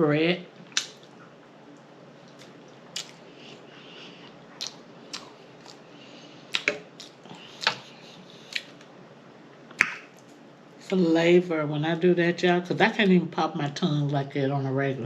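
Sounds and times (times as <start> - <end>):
wet lip smacks: 0.7 - 1.2, 2.3 - 3.2, 4.6 - 5.8
person chewing: 2.2 - 8.9.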